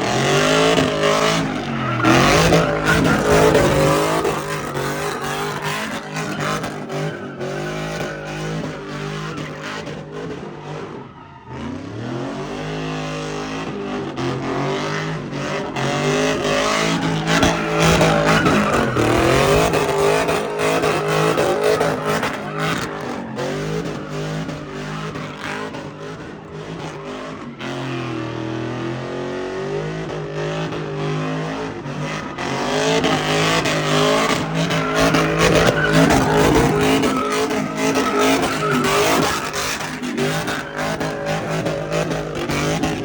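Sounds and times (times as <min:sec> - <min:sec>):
tyres screeching: 0:00.0 - 0:08.7, 0:16.6 - 0:24.0, 0:33.2 - 0:43.0
car engine revving hard: 0:00.0 - 0:43.0.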